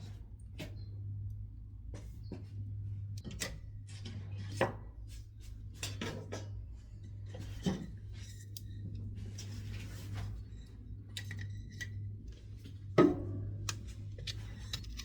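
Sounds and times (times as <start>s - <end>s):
steady low hum: 6.6s - 15.0s.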